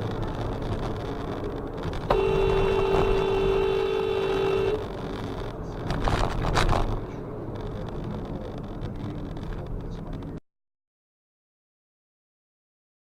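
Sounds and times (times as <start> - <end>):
road and engine noise: 0.0 - 10.4
car horn two-note blast: 2.1 - 4.8.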